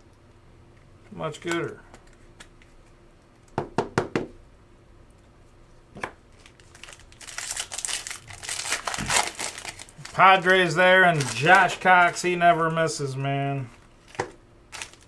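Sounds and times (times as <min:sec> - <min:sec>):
wrapper crinkling and tearing: 0:06.3 - 0:12.8, 0:13.7 - 0:15.0.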